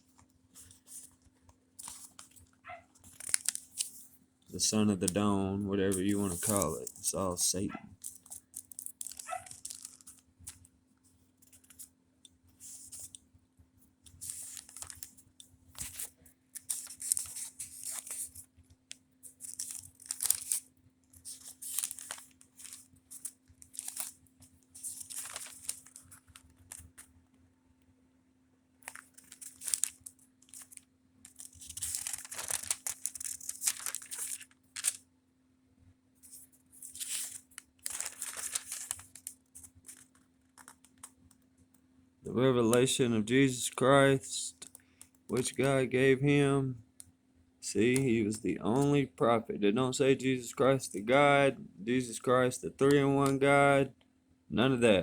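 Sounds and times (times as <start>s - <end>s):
book pages rustling: 0.0s - 11.9s, 12.5s - 13.3s, 14.1s - 18.6s, 19.2s - 27.2s, 28.8s - 35.0s, 36.2s - 41.4s
faint steady hum: 0.0s - 55.0s.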